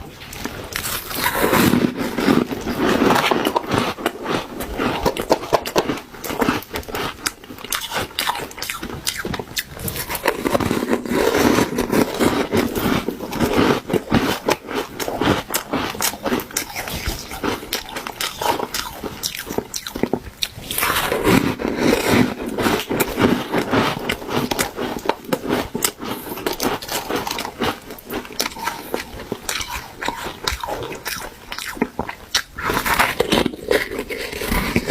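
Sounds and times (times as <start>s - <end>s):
ice crunching while chewed: 0.2s - 34.9s.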